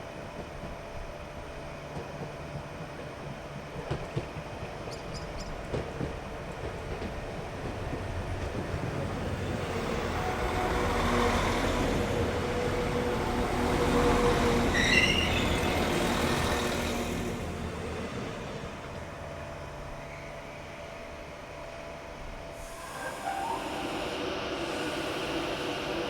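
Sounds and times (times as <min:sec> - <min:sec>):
train wheels rumbling: 0:00.0 - 0:26.0
train humming tones: 0:05.7 - 0:26.0.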